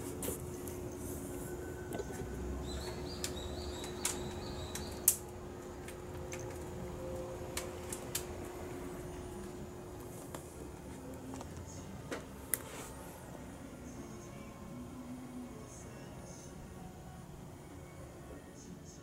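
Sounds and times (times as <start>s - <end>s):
small birds chirping: 2.6s - 5.1s.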